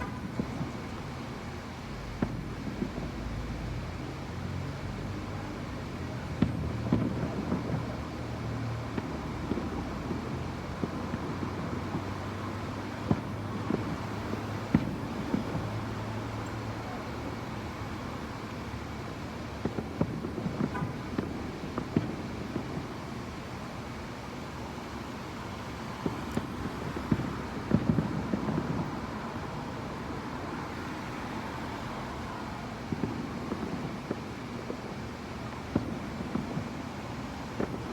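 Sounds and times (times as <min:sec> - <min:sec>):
distant fireworks bangs: 0:00.0 - 0:37.9.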